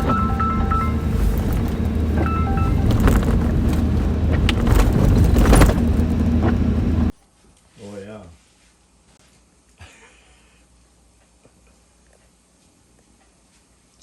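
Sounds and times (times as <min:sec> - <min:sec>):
short high beeps: 0:00.0 - 0:04.0
knocks and bumps: 0:00.0 - 0:07.1
vehicle engine and road noise: 0:00.0 - 0:07.1.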